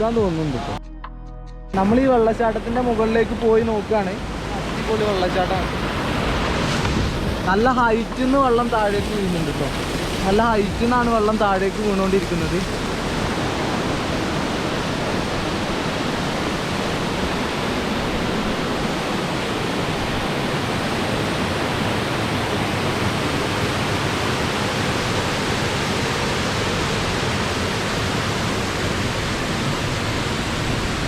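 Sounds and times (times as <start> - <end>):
waterfall rushing: 2.4 - 31.0.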